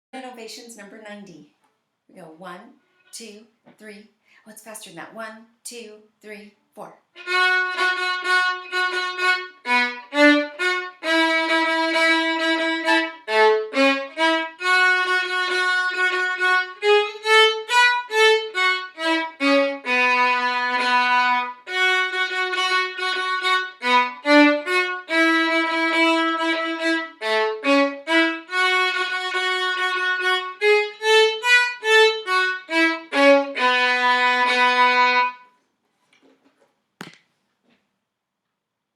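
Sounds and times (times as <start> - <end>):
solo violin melody: 7.2 - 35.6.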